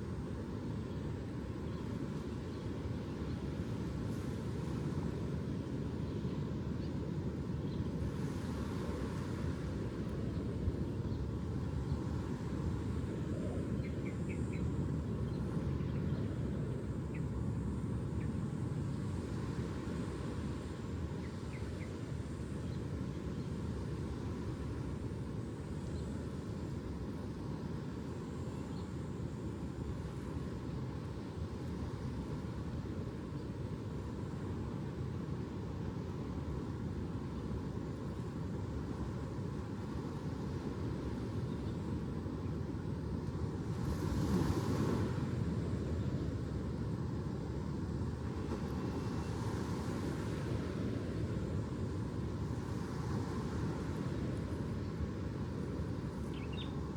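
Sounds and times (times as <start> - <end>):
faint bird chirps: 56.3 - 56.8.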